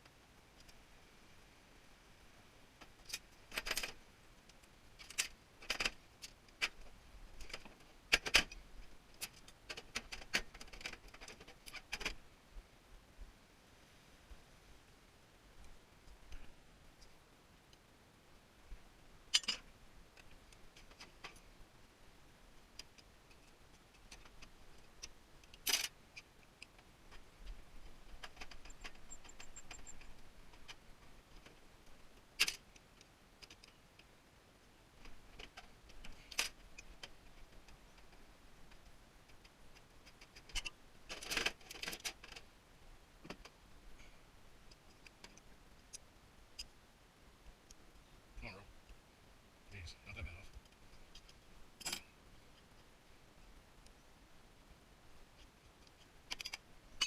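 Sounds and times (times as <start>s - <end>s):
sharp clicks and metallic clinks: 19.3s - 19.6s.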